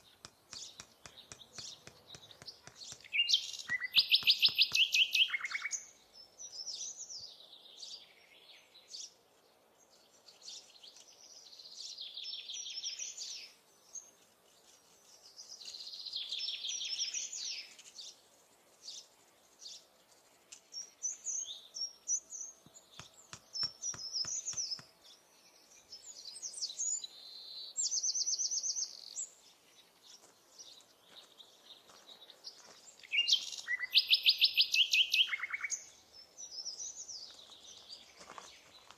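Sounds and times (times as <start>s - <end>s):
songbirds trilling: 0.0s - 9.2s, 20.6s - 38.9s.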